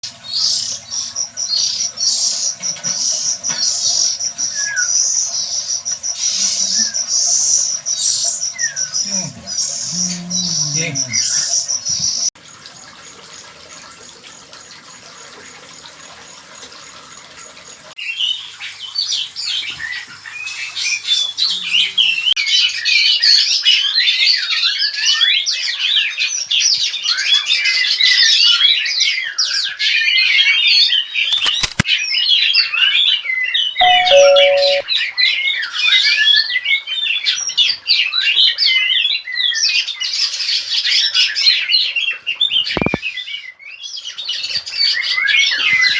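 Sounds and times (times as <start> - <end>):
two-note low beep: 33.8 - 34.8.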